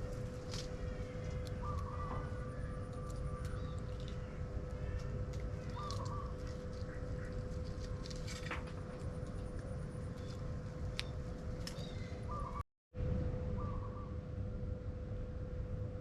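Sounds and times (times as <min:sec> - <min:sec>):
birds calling: 0:00.0 - 0:08.1, 0:10.1 - 0:12.6
faint hum: 0:00.0 - 0:16.0
low rumble: 0:00.0 - 0:16.0.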